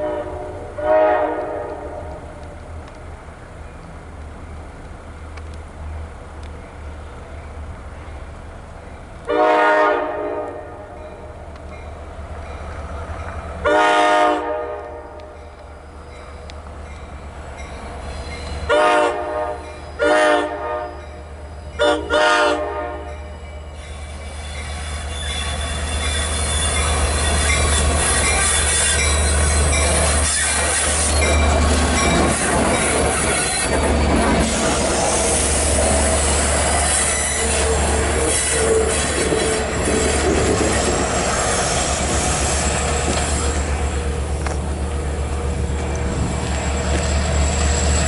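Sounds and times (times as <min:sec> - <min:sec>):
train horn blasts: 0:00.0 - 0:02.2, 0:09.3 - 0:11.0, 0:13.6 - 0:15.4, 0:18.7 - 0:23.4
wheels squealing: 0:23.6 - 0:48.0.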